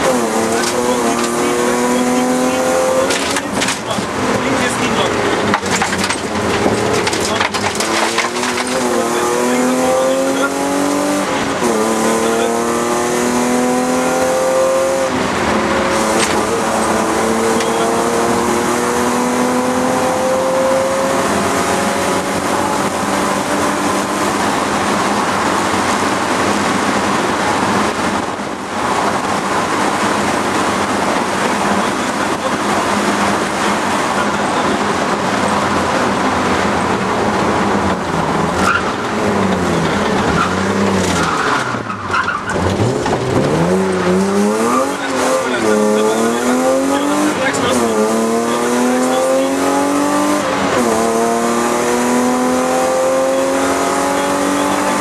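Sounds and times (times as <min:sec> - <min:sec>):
car engine accelerating hard: 0:00.0 - 0:55.0.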